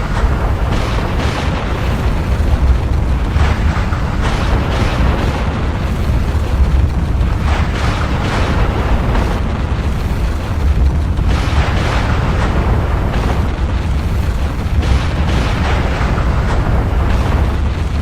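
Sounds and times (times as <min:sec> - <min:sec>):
deep volcanic rumble: 0:00.0 - 0:18.0
rushing crackling noise: 0:00.0 - 0:18.0.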